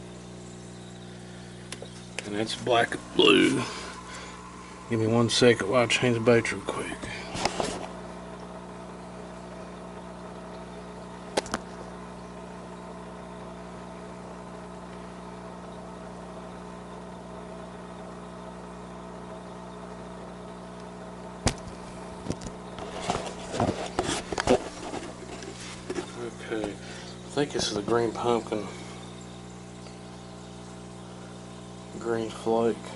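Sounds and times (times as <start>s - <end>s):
electric motor hum: 0.0s - 32.9s
sharp click: 11.4s - 11.7s
handling knocks and rustles: 21.5s - 26.9s.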